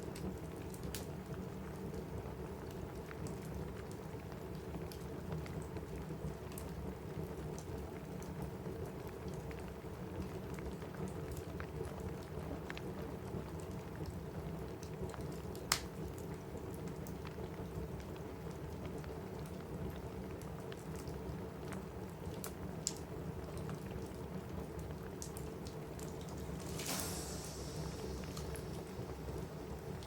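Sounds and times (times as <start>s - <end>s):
wood fire crackling: 0.0s - 30.0s
rain hissing: 25.3s - 30.0s.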